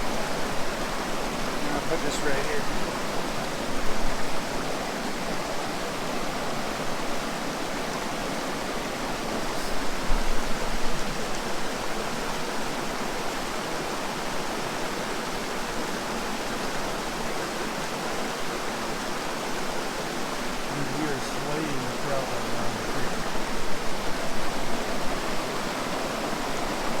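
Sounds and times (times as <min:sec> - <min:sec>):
mountain stream rushing: 0:00.0 - 0:27.0.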